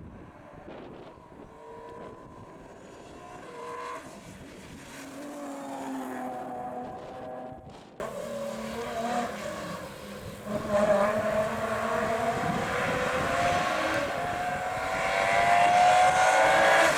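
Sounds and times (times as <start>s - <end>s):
rally car engine accelerating: 1.4s - 16.9s
wind buffeting microphone: 8.0s - 16.9s.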